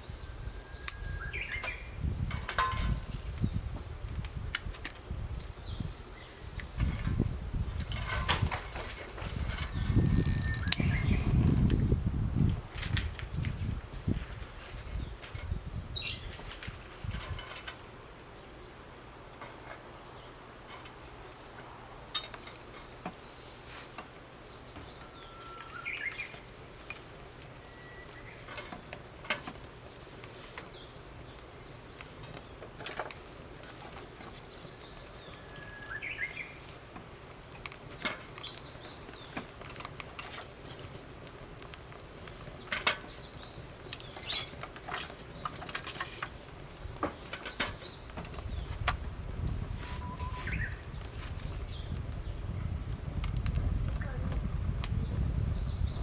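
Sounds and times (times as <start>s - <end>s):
bird calling: 0.1s - 2.0s, 9.7s - 11.5s, 24.9s - 26.5s, 34.7s - 36.6s, 49.9s - 51.8s
wood fire crackling and popping: 0.2s - 56.0s.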